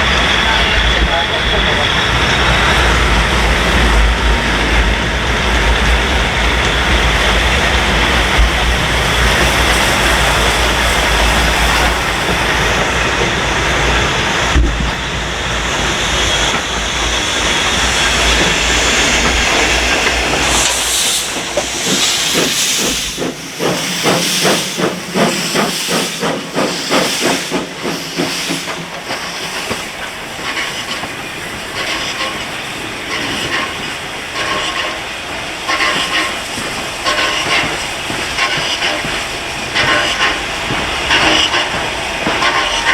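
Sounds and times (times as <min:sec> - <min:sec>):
low train rumble: 0:00.0 - 0:42.9
steam hissing: 0:00.0 - 0:42.9.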